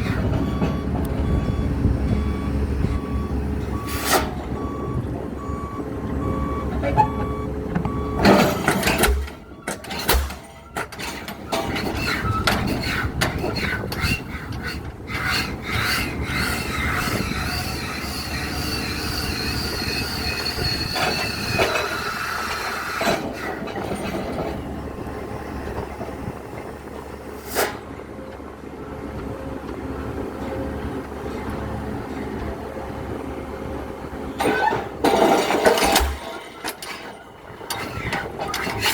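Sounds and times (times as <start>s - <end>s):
diesel engine rumble: 0.0s - 38.9s
metal squealing on metal: 6.2s - 7.4s, 8.3s - 24.6s, 34.4s - 38.9s
metallic clanks: 6.8s - 14.0s, 34.4s - 38.9s.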